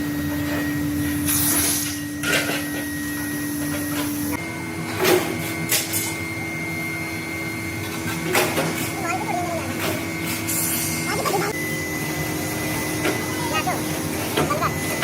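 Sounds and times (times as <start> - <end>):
machine tool humming: 0.0 - 15.0
metal clanks and scrapes: 1.2 - 2.8.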